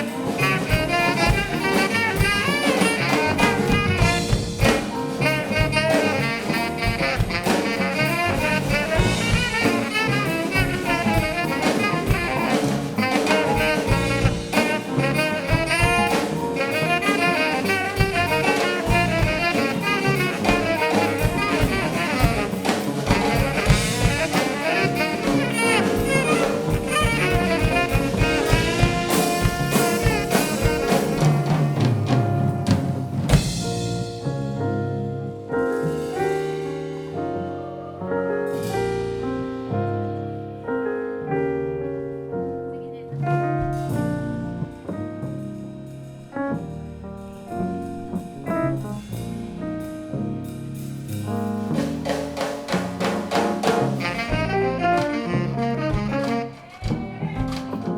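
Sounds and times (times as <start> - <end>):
saxophone and trumpet melody: 0.0 - 34.1, 53.6 - 57.7
drum kit: 0.0 - 40.6, 43.1 - 57.9.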